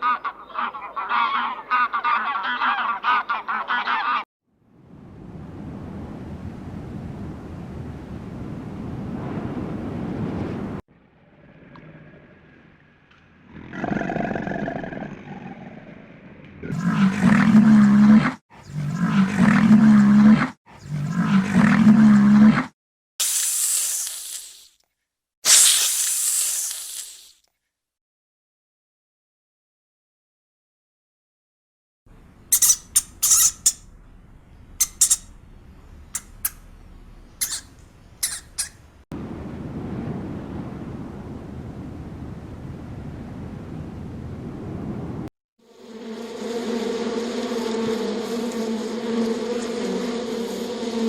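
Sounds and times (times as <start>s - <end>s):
short high hiss: 23.2s - 24.8s, 25.4s - 27.4s, 32.5s - 33.9s
short sharp bird calls: 32.5s - 33.9s, 34.7s - 35.5s, 37.3s - 39.0s.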